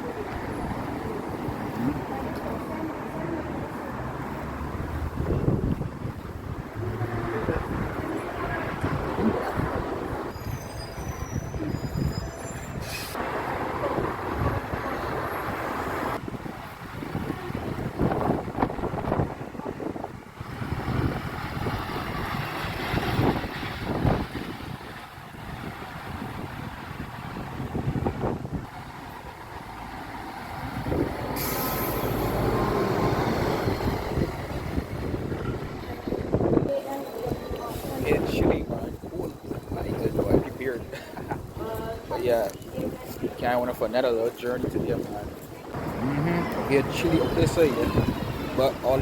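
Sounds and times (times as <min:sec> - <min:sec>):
large vehicle rumbling: 0:00.0 - 0:42.1, 0:44.7 - 0:49.0
faint high-pitched squeals: 0:10.3 - 0:13.2
short hiss: 0:31.4 - 0:32.1.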